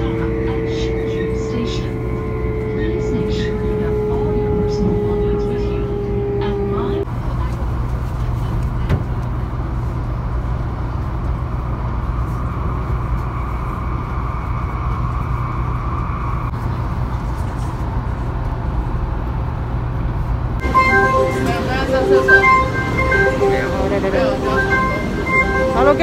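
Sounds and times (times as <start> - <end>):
train running rumble: 0.0 - 26.0
whine: 10.6 - 18.3, 20.6 - 26.0.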